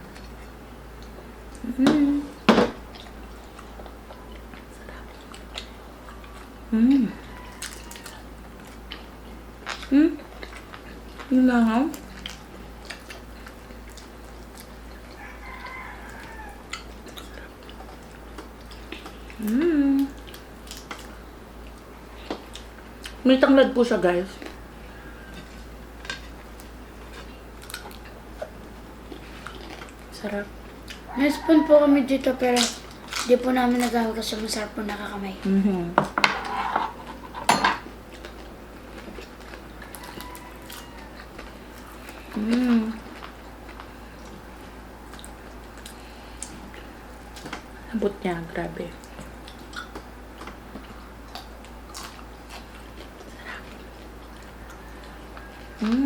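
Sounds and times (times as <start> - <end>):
crispy food crunching: 2.9 - 23.2, 24.2 - 31.5, 32.3 - 35.0, 38.0 - 56.0
small eating clicks: 2.9 - 24.6
faint rooster crowing: 6.1 - 8.4, 15.0 - 16.9, 24.6 - 25.7, 31.1 - 32.5, 39.8 - 41.6, 46.0 - 48.1, 54.4 - 56.0.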